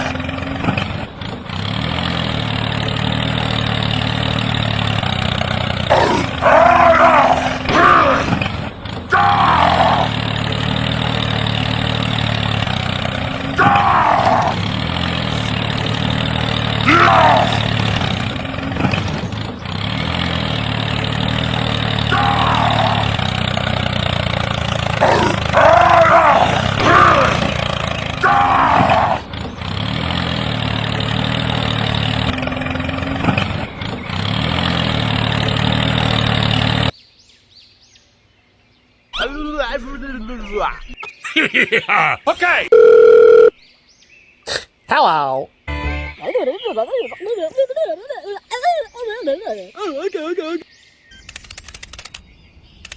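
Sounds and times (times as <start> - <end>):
engine running: 0.0 - 37.0
high falling calls: 39.1 - 43.6, 44.4 - 52.2.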